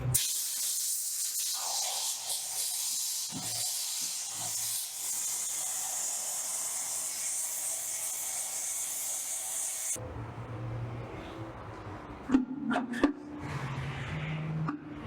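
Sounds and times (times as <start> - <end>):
compressed air hissing from nozzle: 0.2 - 10.0.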